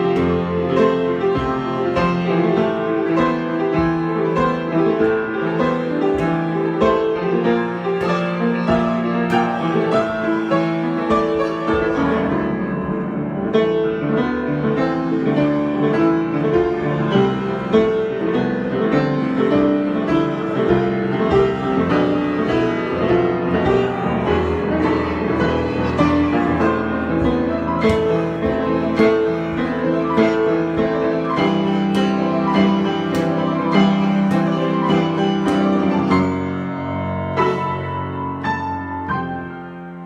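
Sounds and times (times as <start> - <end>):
piano improvisation: 0.0 - 40.0.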